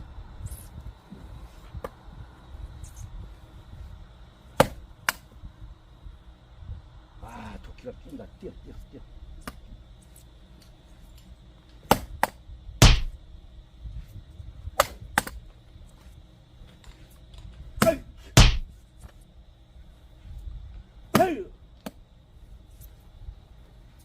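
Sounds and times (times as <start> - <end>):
axe chopping wood: 4.6 - 5.2, 11.8 - 13.2, 14.8 - 15.4, 17.8 - 18.7, 21.1 - 21.4.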